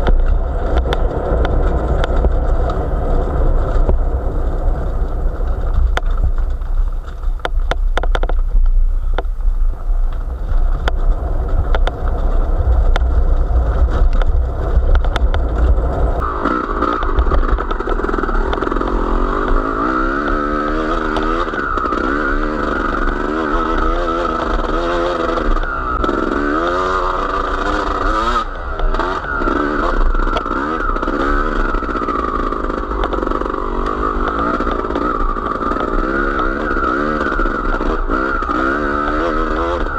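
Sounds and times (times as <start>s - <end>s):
wind on microphone: 0.0s - 21.8s
small motor vehicle engine revving: 10.8s - 39.9s.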